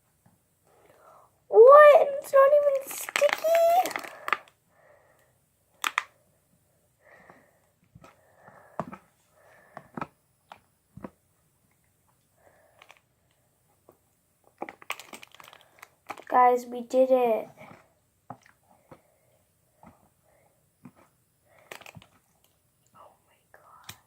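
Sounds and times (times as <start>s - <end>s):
slime squishing: 2.4s - 4.5s, 13.9s - 16.5s, 20.8s - 22.6s.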